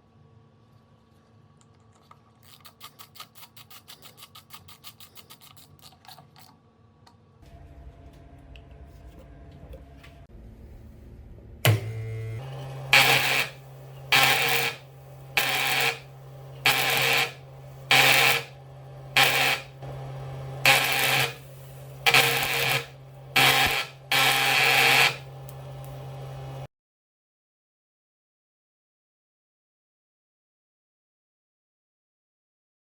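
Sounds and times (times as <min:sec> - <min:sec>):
welding machine humming: 0:11.6 - 0:26.7
crackling welding arcs: 0:12.8 - 0:26.7.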